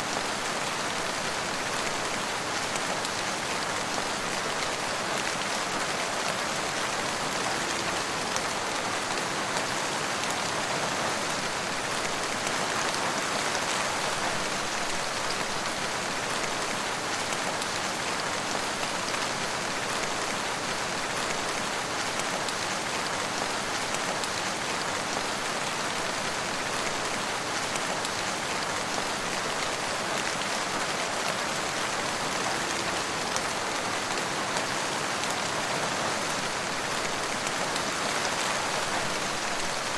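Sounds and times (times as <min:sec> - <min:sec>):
rain on hard surfaces: 0:00.0 - 0:39.9.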